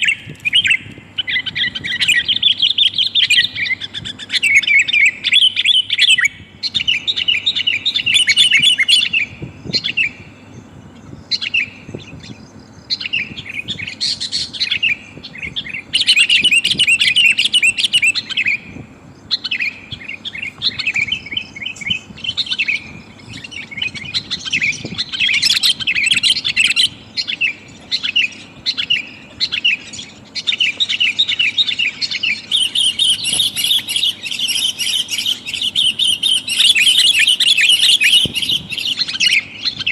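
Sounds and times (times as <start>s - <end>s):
bulbul rapid chattering calls: 0.0s - 39.9s.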